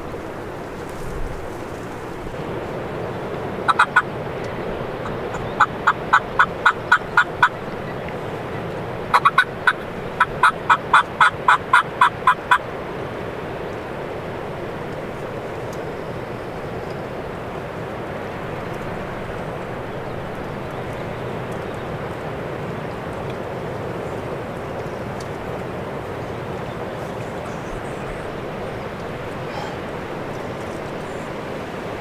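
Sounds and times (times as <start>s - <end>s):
wind noise: 0.0s - 32.0s
turkey yelping: 3.6s - 4.2s, 5.0s - 7.7s, 9.1s - 12.6s, 29.4s - 30.1s.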